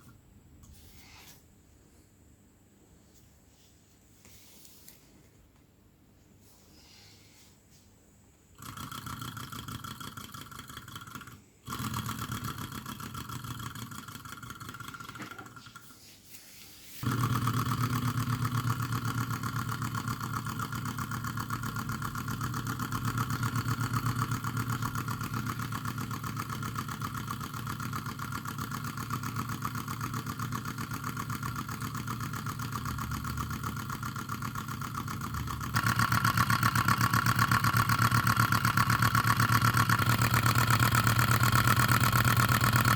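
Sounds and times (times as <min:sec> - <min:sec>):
small hot-air engine running: 0:08.5 - 0:15.9, 0:17.0 - 0:42.9.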